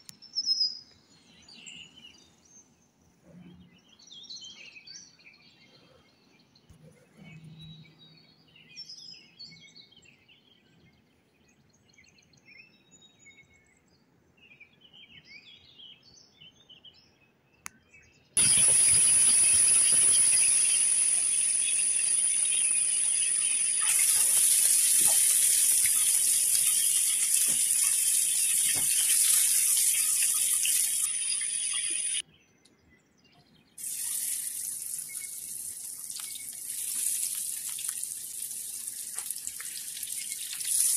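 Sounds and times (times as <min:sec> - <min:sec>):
faint chirping: 0:18.4 - 0:32.2
fish sizzling in hot oil: 0:18.4 - 0:32.2, 0:33.8 - 0:40.9.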